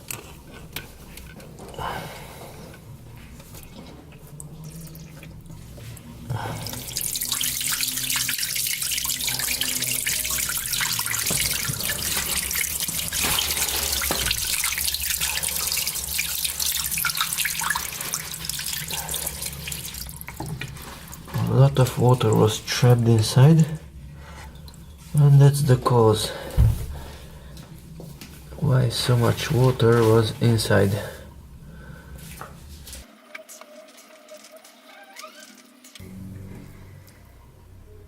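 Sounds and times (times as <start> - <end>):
water gushing from drain: 3.5 - 27.2.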